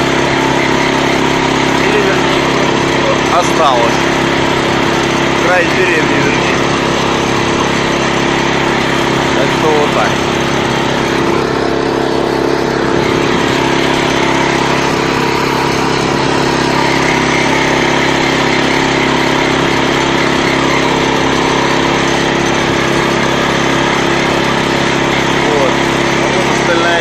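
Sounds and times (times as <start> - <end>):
walk-behind tractor engine running: 0.0 - 27.0.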